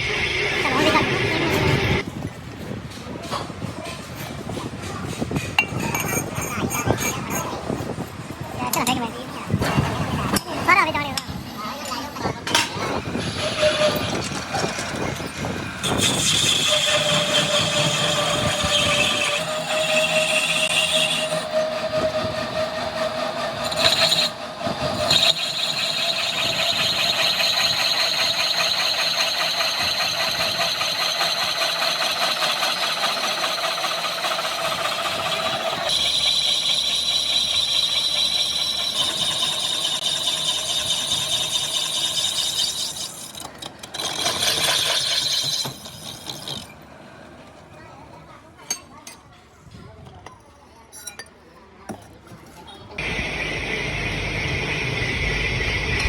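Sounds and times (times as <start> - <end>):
metalworking machine whining: 0.0 - 2.1, 12.3 - 46.9, 53.0 - 56.0.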